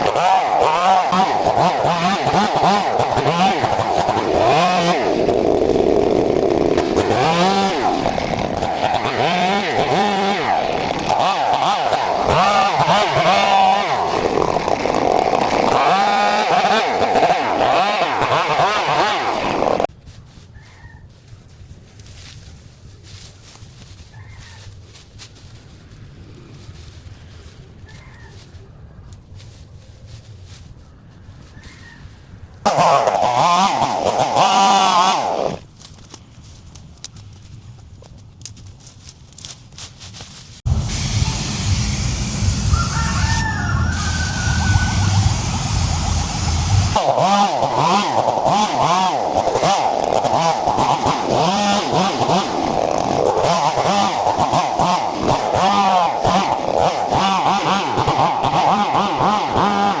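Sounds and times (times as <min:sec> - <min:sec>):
small engine revving: 0:00.0 - 0:19.9, 0:32.6 - 0:35.6, 0:40.6 - 1:00.0
wavering animal call: 0:42.6 - 0:46.2.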